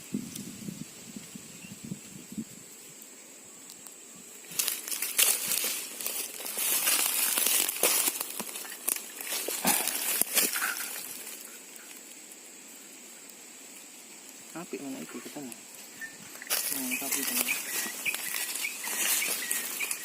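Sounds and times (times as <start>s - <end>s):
crinkling and crackling: 3.0s - 20.0s.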